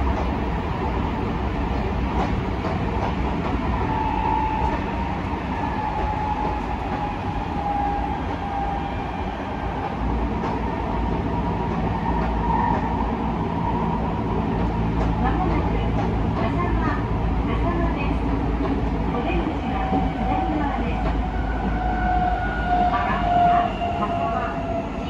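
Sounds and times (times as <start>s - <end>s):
faint train whine: 0.0s - 25.0s
train wheels rumbling on rail: 0.0s - 25.0s.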